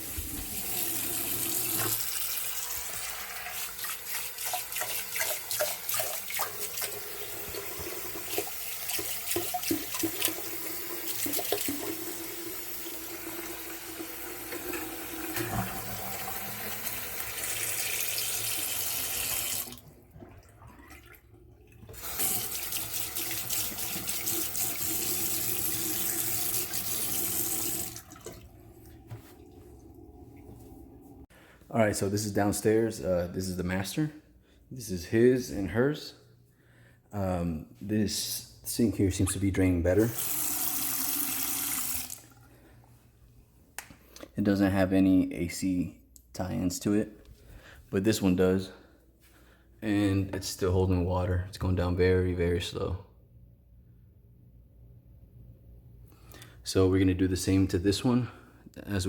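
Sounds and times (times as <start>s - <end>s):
faucet running into a sink: 0.0s - 30.6s, 40.0s - 42.5s
water splashing and knocks: 3.9s - 10.5s, 27.8s - 30.7s.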